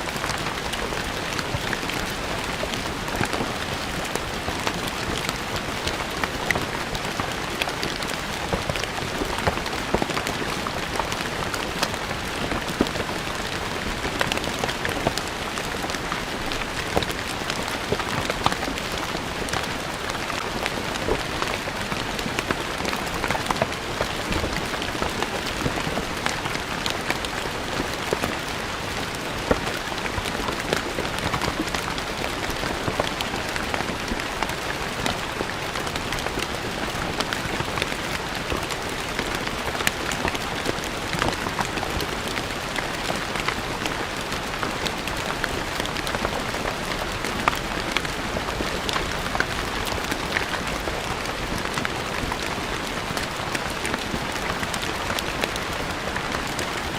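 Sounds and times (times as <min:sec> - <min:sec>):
rain on stone ground: 0:00.0 - 0:56.9.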